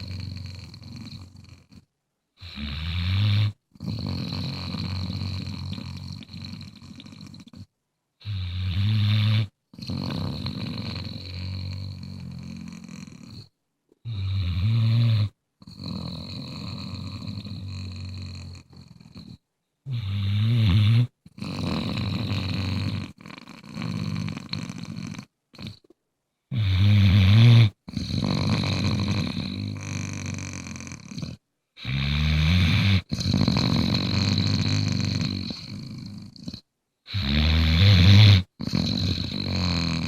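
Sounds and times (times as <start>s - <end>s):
dog snoring: 0.0s - 25.9s, 26.5s - 40.0s.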